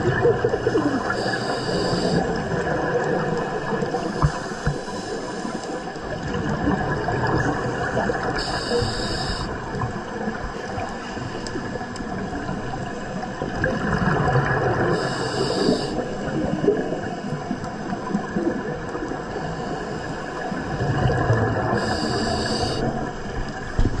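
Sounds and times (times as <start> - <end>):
underwater water noise: 0.0 - 24.0
regulator hiss: 1.0 - 2.4, 3.9 - 5.9, 8.4 - 9.6, 14.9 - 16.1, 21.8 - 22.9.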